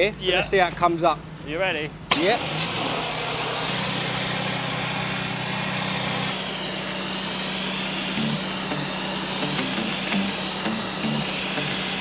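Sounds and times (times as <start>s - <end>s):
engine hum: 2.0s - 12.0s
steam cleaner hissing: 2.1s - 12.0s.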